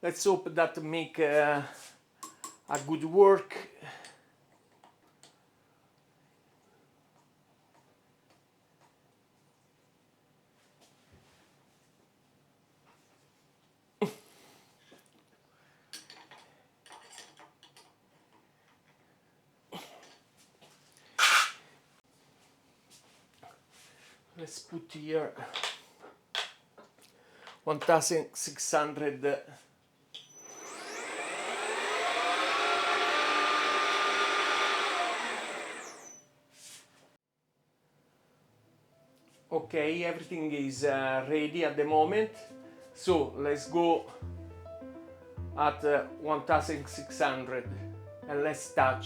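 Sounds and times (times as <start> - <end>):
milling machine spindle whine: 30.3 - 36.2
soft rustle: 36.5 - 37.1.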